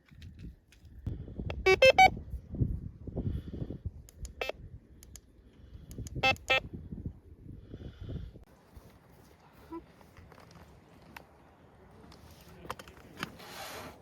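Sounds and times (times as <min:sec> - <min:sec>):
short electronic beeps: 0:01.6 - 0:02.2, 0:06.2 - 0:06.7.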